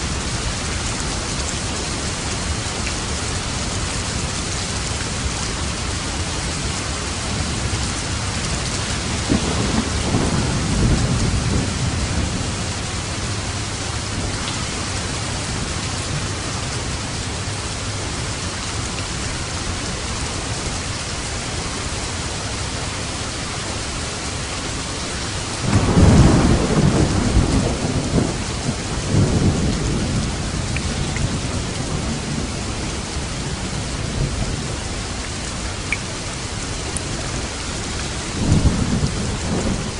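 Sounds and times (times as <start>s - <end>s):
heavy rain: 0.0s - 39.9s
thunder rumbling: 5.3s - 17.4s, 25.5s - 35.8s, 37.0s - 39.9s.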